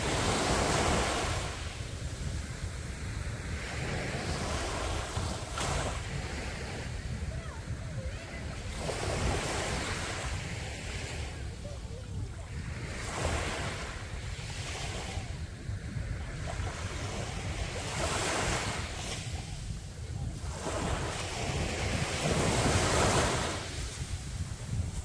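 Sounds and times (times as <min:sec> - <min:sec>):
sea waves breaking on beach: 0:00.0 - 0:25.0
wind rumbling on microphone: 0:00.0 - 0:25.0.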